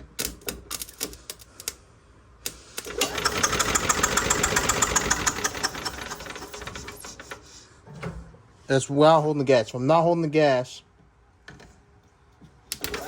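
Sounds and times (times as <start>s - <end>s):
starter spinning engine over: 2.8s - 7.4s.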